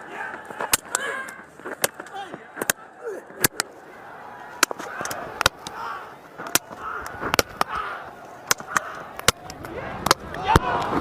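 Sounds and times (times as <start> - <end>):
background murmur: 0.0 - 11.0.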